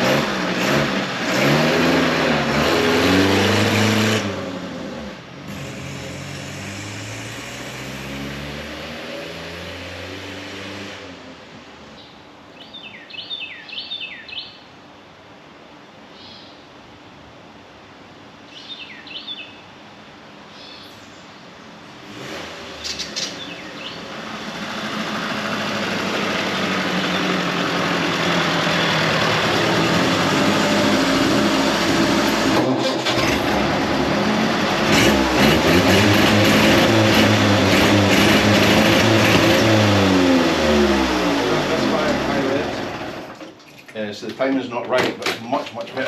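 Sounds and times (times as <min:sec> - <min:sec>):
small petrol engine revving: 0:00.0 - 0:11.4, 0:22.0 - 0:43.5.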